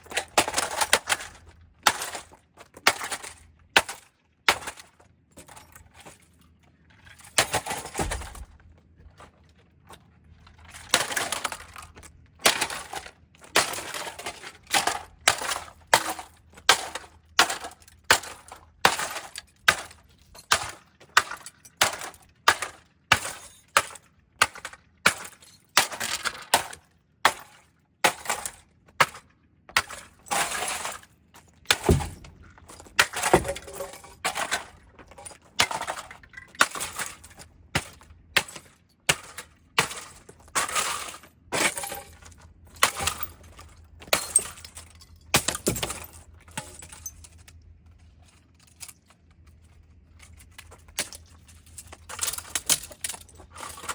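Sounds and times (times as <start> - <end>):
breaking glass and pieces rattling: 10.6 - 47.5, 50.1 - 53.9.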